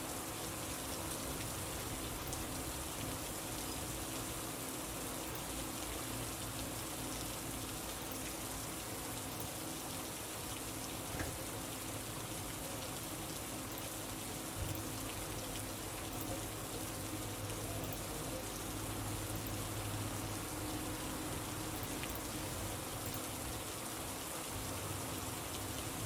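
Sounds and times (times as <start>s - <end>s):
steady rain falling: 0.0s - 26.0s
small ticks: 5.2s - 6.1s, 7.9s - 8.6s, 13.3s - 21.0s, 21.6s - 23.4s.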